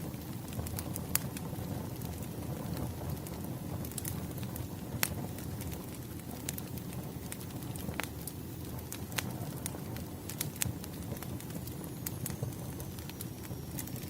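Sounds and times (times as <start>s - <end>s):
burning logs crackling and popping: 0.0s - 14.0s
wood fire rumbling: 0.0s - 14.0s.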